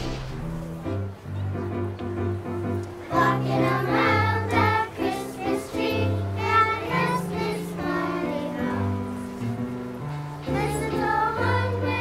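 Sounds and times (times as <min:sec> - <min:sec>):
choir singing with instruments: 0:03.0 - 0:12.0.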